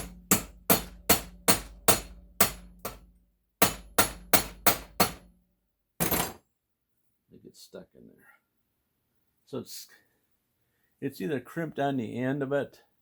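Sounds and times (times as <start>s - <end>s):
hammer striking metal: 0.0s - 5.3s.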